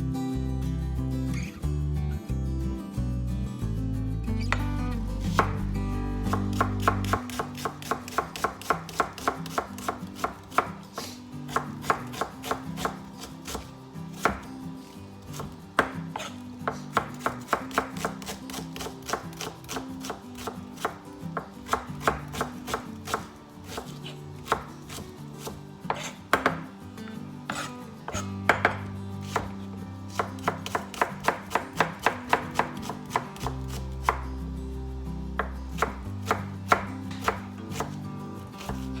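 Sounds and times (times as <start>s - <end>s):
knife chopping on cutting board: 4.5s - 14.5s, 15.3s - 26.7s, 27.5s - 34.2s, 35.4s - 38.0s, 38.6s - 39.0s.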